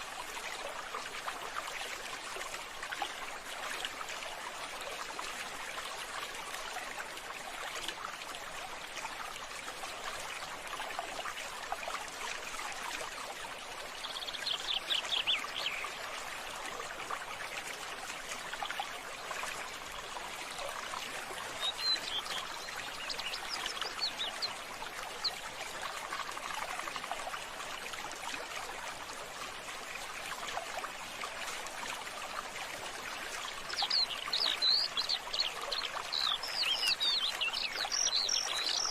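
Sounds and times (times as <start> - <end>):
trickling water: 0.0 - 38.9
birds chirping: 21.6 - 24.6, 33.8 - 38.9.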